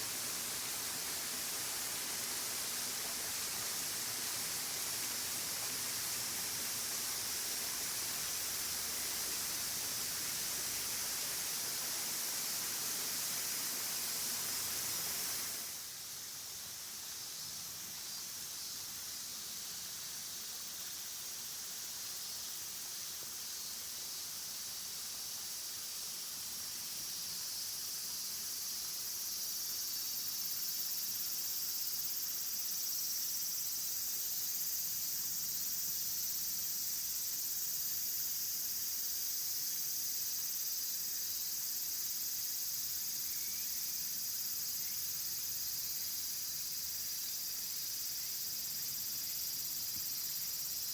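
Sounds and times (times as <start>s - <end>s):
insects chirring: 19.8s - 50.9s.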